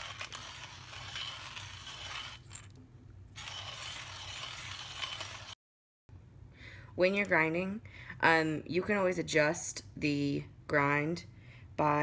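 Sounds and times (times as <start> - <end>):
hand coffee grinder grinding beans: 0.0 - 5.6.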